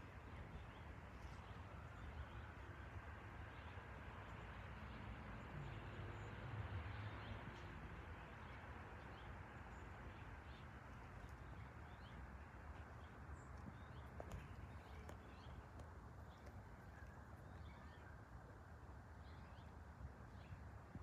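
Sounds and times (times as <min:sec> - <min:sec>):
faint outdoor background hiss: 0:00.0 - 0:21.0
small birds chirping: 0:07.0 - 0:18.2.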